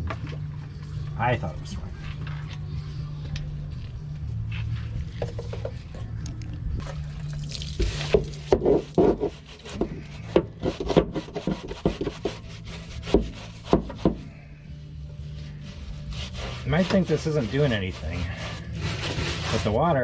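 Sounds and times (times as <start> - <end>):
steady low hum: 0.0 - 20.0
stiff brush scrubbing car: 7.6 - 20.0.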